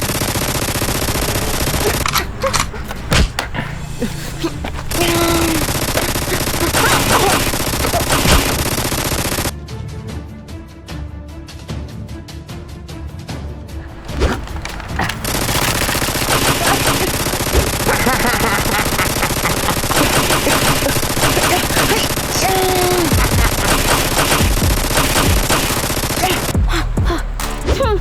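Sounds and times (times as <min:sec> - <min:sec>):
rapid automatic gunfire: 0:00.0 - 0:03.1, 0:04.7 - 0:09.5, 0:14.0 - 0:26.6.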